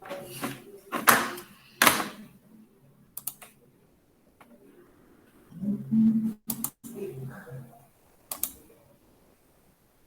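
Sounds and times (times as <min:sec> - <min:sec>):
computer keyboard typing clicks: 0:03.2 - 0:03.5, 0:06.5 - 0:06.8, 0:08.3 - 0:08.6.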